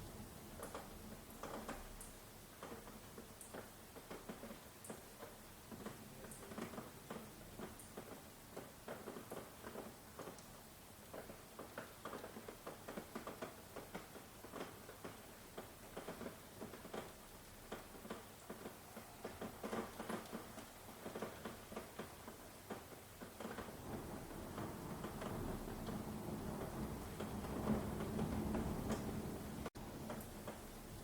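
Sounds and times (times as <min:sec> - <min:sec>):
rain dripping on surface: 0:00.0 - 0:31.0.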